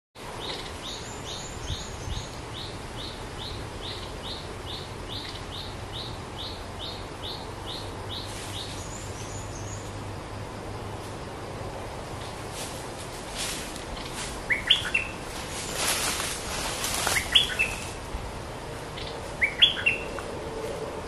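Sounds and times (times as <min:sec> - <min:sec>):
songbird calling: 0:00.3 - 0:10.1, 0:13.8 - 0:18.0, 0:18.9 - 0:20.4.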